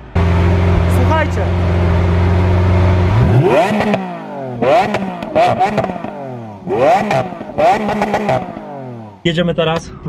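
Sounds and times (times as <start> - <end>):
car engine revving: 0.0 - 10.0
exhaust crackles: 0.0 - 10.0.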